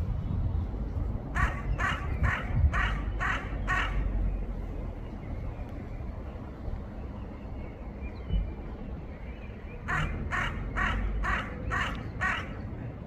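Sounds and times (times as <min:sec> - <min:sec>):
low background rumble: 0:00.0 - 0:13.0
crow cawing: 0:09.9 - 0:12.6.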